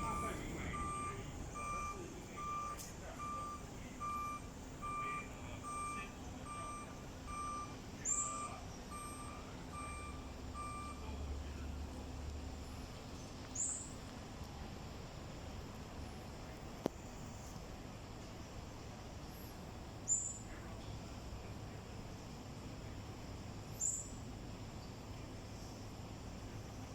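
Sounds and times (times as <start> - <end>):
low hum: 0.0 - 4.9
vehicle reversing alarm beeping: 0.0 - 12.0.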